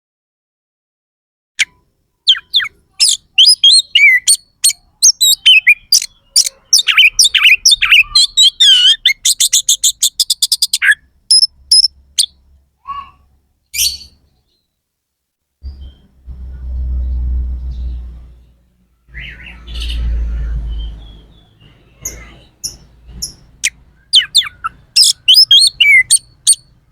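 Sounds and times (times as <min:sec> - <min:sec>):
magpie-robin singing: 0:02.3 - 0:14.7, 0:15.6 - 0:16.2, 0:19.1 - 0:26.9.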